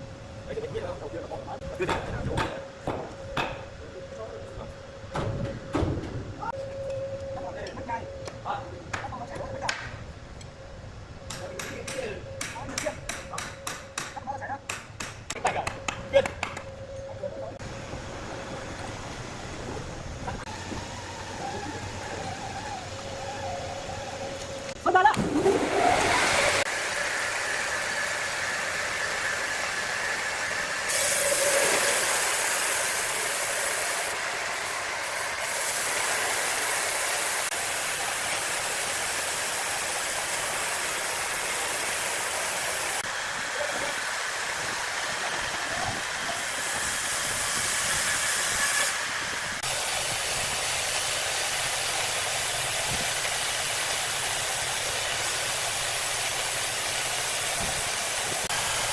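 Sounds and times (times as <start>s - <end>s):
industrial wood saw cutting: 25.4s - 52.8s, 53.4s - 58.9s.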